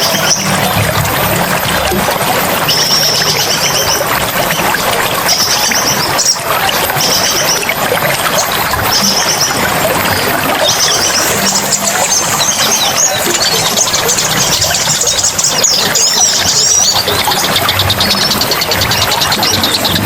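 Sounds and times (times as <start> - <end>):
bird high rapid trill: 0.0 - 20.0
running water rushing: 0.0 - 20.0.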